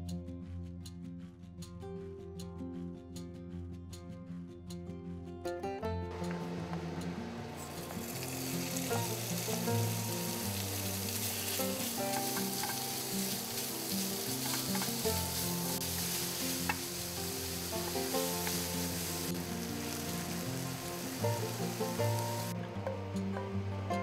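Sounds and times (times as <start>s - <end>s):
meat sizzling in oil: 7.7s - 22.6s.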